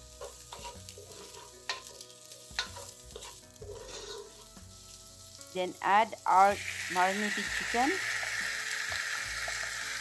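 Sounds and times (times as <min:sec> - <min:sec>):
onion sizzling in oil: 0:00.0 - 0:10.0
utensil knocking and scraping pan: 0:00.2 - 0:04.7.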